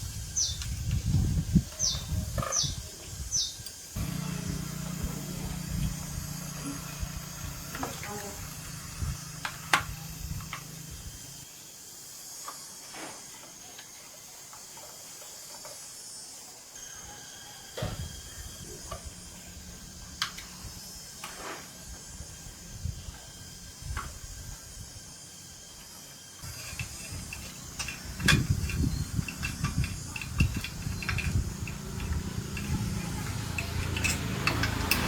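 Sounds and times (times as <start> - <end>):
steady low hiss: 0.0 - 16.9, 18.1 - 35.0
sharp clicks and knocks: 26.4 - 35.0.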